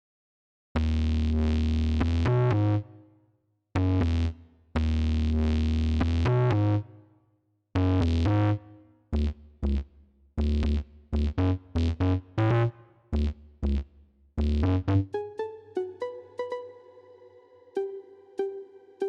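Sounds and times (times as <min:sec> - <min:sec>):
deep bass: 0:00.8 - 0:02.8, 0:03.8 - 0:06.9, 0:07.8 - 0:15.2
synth pluck notes and chords: 0:14.4 - 0:19.0.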